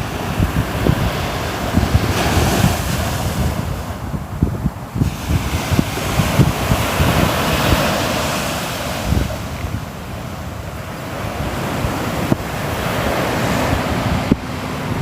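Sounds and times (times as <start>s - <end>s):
sea waves breaking on shore: 0.0s - 15.0s
wind rumbling on microphone: 0.0s - 15.0s.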